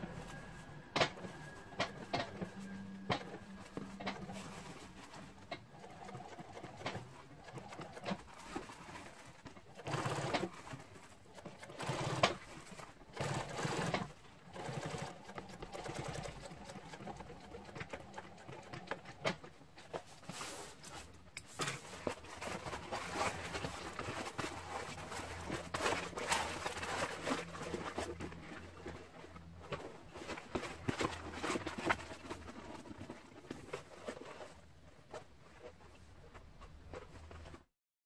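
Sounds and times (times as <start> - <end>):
sewing machine stitching: 0.3 - 20.0.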